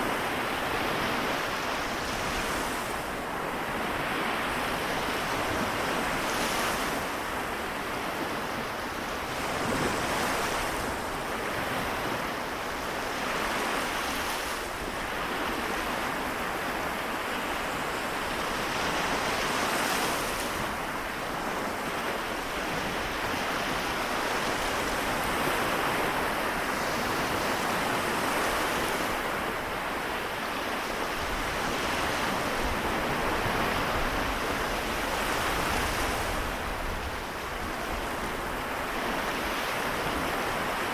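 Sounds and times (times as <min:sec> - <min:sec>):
small waves washing onto shore: 0:00.0 - 0:40.9
wind: 0:00.0 - 0:40.9.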